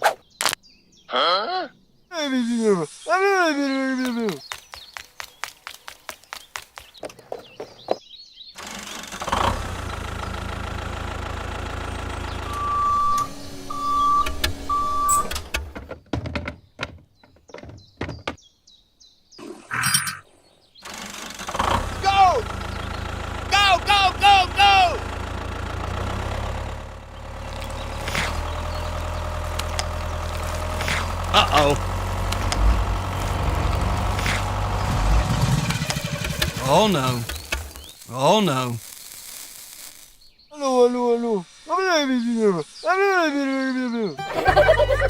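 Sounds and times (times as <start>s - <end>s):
motor humming: 8.6s - 15.8s, 20.8s - 40.2s
engine starting and running: 8.6s - 16.0s, 20.8s - 40.2s, 44.2s - 45.0s
beeps: 12.5s - 15.4s
brief hiss: 35.6s - 40.3s.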